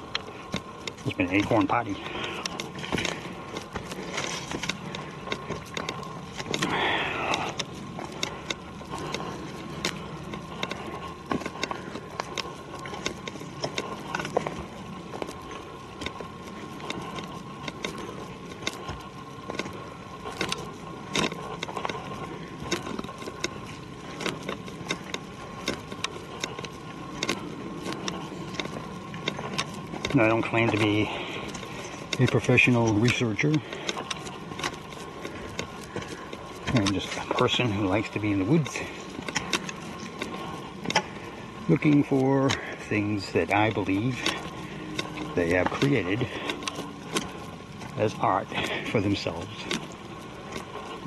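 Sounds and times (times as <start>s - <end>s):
footsteps crunching on trail: 0.0s - 51.0s.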